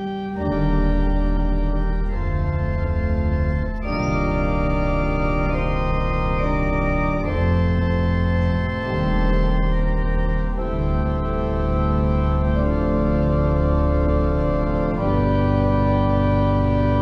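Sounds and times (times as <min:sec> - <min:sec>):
organ playing slow chords: 0:00.0 - 0:17.0.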